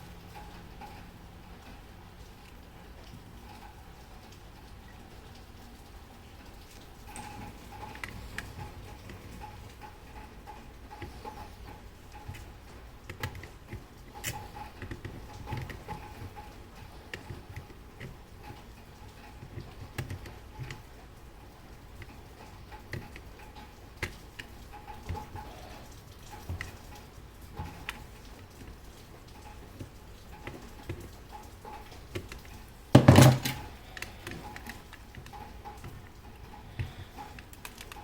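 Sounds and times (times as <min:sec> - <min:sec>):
small parts clicking and tapping: 0:06.6 - 0:20.9, 0:21.8 - 0:38.0.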